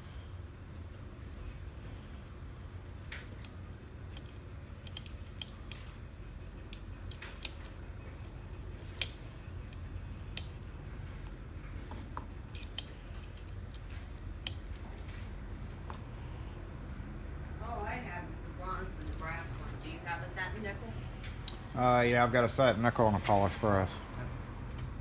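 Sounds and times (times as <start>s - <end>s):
steady low hum: 0.0s - 25.0s
metal lock parts clicking: 3.2s - 10.7s, 12.0s - 16.1s.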